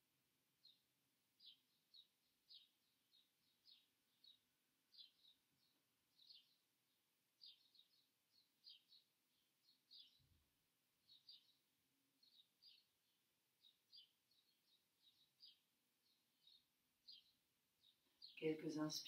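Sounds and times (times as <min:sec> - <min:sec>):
small bird chirping: 0:00.6 - 0:19.0.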